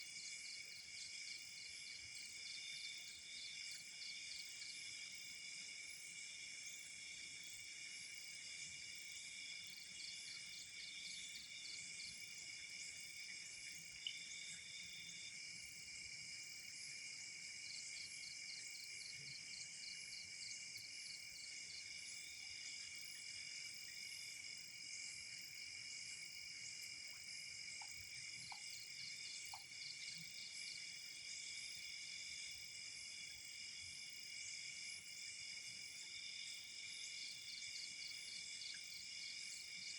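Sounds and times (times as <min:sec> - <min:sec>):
crickets trilling: 0:09.4 - 0:32.0.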